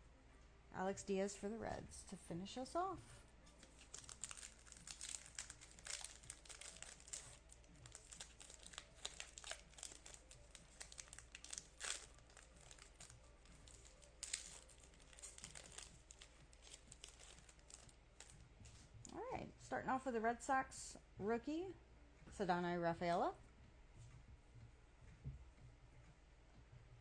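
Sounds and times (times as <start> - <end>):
wrapper tearing and crinkling: 3.6 - 18.3.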